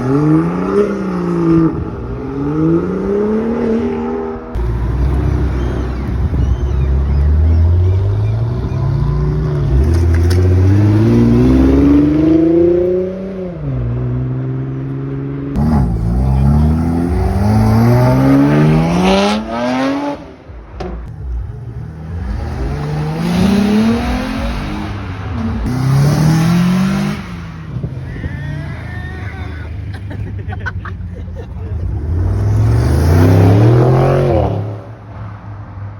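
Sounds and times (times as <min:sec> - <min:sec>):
sports car engines accelerating: 0:00.0 - 0:28.9, 0:31.6 - 0:35.9.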